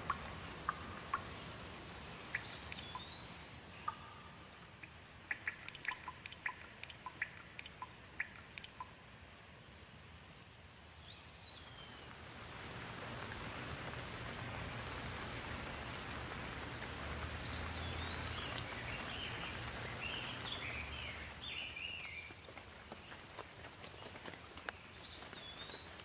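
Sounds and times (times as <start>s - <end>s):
steady rainfall: 0.0s - 26.0s
bird chirping: 2.2s - 9.0s, 10.8s - 12.2s, 13.9s - 22.4s, 24.7s - 26.0s.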